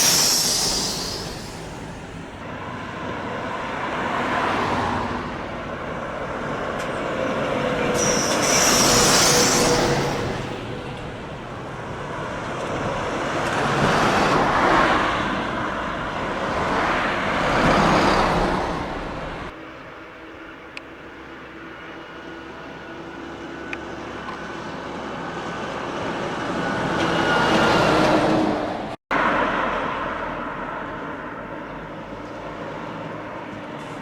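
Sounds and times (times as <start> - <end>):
loud air hiss: 0.0 - 2.4, 8.0 - 10.6
diesel trucks driving past: 0.0 - 34.0.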